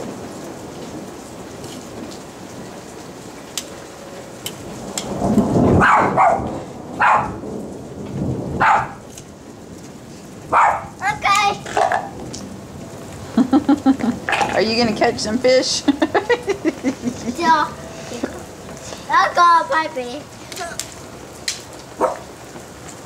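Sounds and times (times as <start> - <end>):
rain on hard surface: 0.0 - 23.0
dog barking: 5.8 - 7.4, 8.6 - 9.0, 10.5 - 11.0, 22.0 - 22.3.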